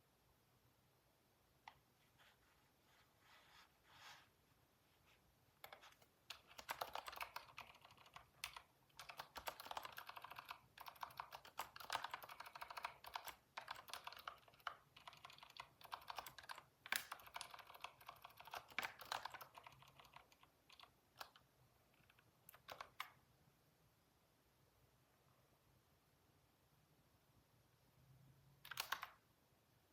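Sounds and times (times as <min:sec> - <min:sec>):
typing on computer keyboard: 0:05.6 - 0:23.2, 0:28.6 - 0:29.2.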